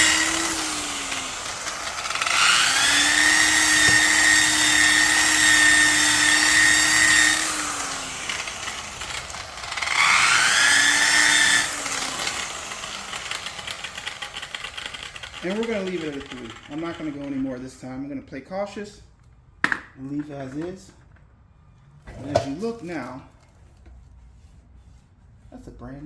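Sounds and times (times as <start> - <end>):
electric buffing tool whining: 0.0 - 17.4.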